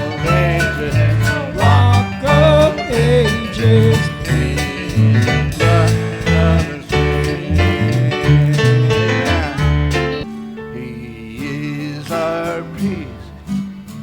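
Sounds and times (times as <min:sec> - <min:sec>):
bass line: 0:00.0 - 0:10.3
wavering lead melody: 0:00.0 - 0:11.0
country gospel band playing: 0:00.0 - 0:14.0
guitar: 0:00.0 - 0:14.0.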